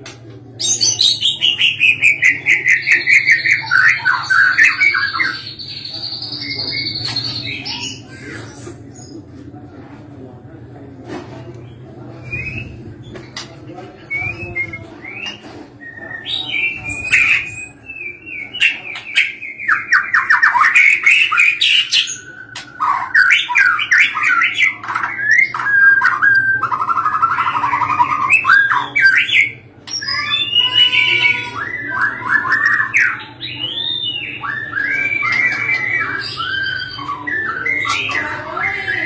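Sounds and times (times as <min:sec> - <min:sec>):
songbird singing whistles and trills: 0:12.1 - 0:12.8, 0:14.0 - 0:39.0.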